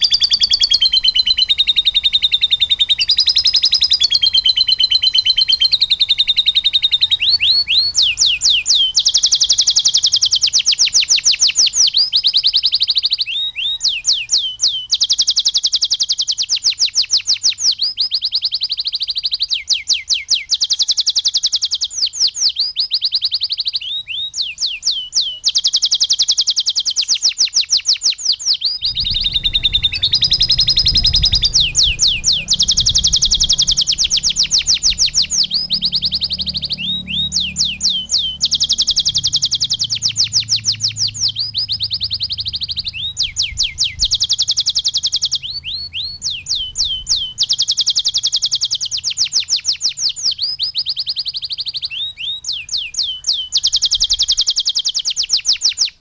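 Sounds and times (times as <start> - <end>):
canary trilling: 0.0 - 56.0
low rumble: 28.8 - 44.3.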